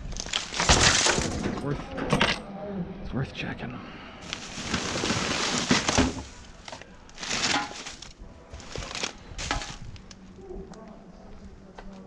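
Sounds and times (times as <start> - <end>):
plastic bin bags rustling: 0.0 - 1.6, 4.2 - 10.2.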